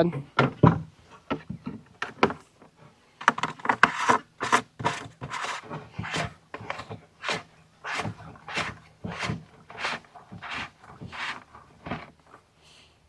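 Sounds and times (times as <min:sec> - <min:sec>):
short scraping strokes: 0:03.8 - 0:12.1.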